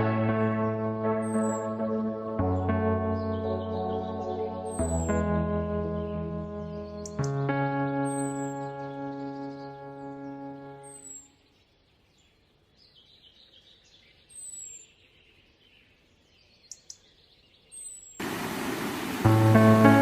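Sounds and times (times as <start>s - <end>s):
soft music with held notes: 0.0s - 11.4s, 19.2s - 20.0s
birds chirping faintly: 0.0s - 20.0s
rain hiss: 18.2s - 20.0s.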